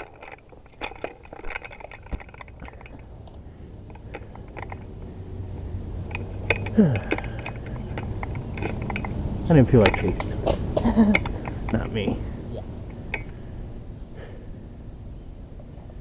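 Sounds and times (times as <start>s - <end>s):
light clicks and clinks: 0.0s - 5.2s, 6.0s - 12.3s, 12.9s - 13.4s
low steady hum: 0.0s - 16.0s.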